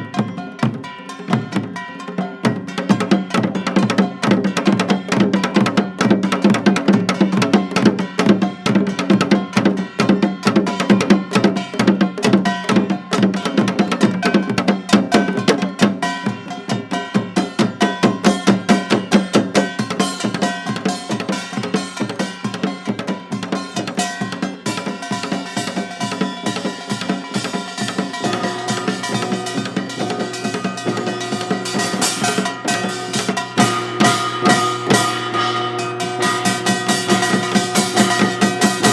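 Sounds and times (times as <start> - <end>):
fast percussion strikes: 0.0 - 38.9
low held tone: 28.3 - 38.9.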